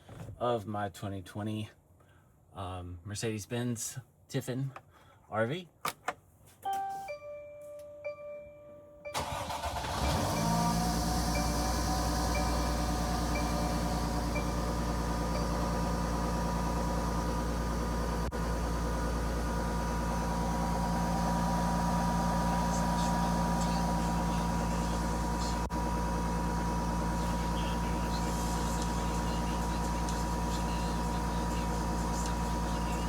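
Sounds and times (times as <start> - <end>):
engine idling: 9.1 - 33.0.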